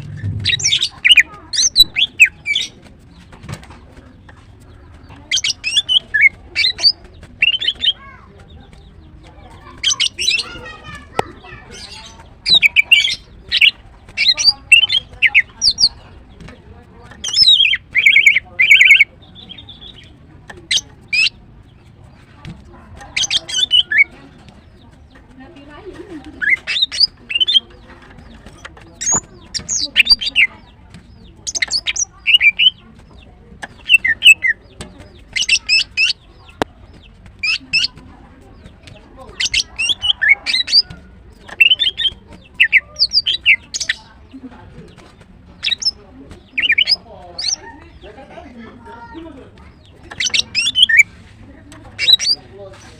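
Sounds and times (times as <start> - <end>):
bird chirps and whistles: 41.6 - 44.0, 50.1 - 51.1
bird high-pitched call notes: 50.2 - 51.1.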